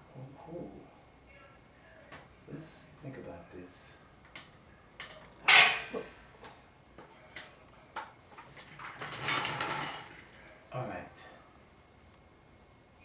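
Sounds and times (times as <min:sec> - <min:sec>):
metal rattle: 0:04.3 - 0:06.5, 0:08.4 - 0:10.5
ringing metallic clank: 0:05.0 - 0:06.2.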